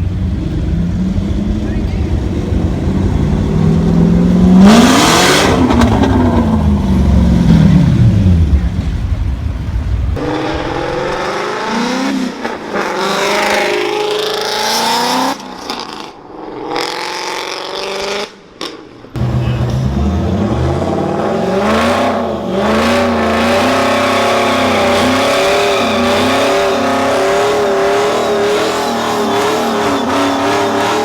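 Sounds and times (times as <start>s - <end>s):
car engine revving hard: 0.0s - 9.0s, 19.2s - 31.0s
people's voices: 0.4s - 3.1s, 19.2s - 20.9s.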